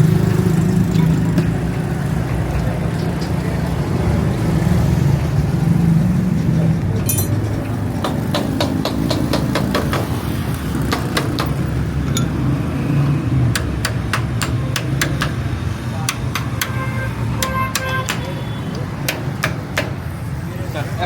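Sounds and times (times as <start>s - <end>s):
metal-on-metal taps and knocks: 7.0s - 10.1s, 10.9s - 12.4s.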